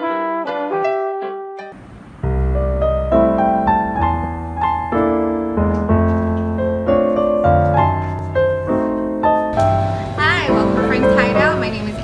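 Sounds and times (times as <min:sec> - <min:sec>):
piano-like keyboard chords: 0:00.0 - 0:12.0
steady bass line: 0:09.6 - 0:12.0.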